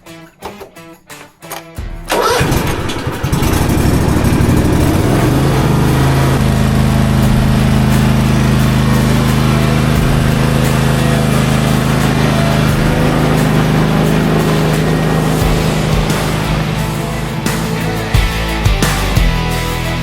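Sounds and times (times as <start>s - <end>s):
mower engine starting and running: 2.1s - 20.0s.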